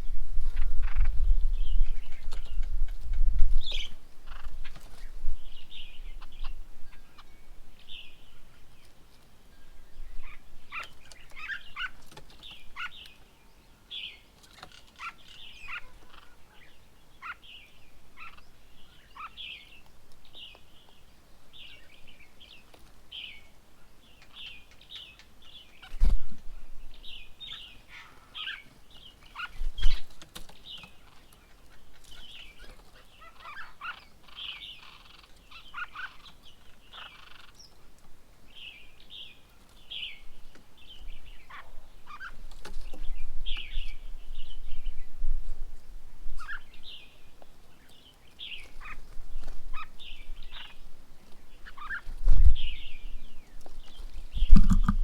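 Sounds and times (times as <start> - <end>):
birds chirping and calling: 0.0 - 55.0
low thumps: 54.4 - 55.0.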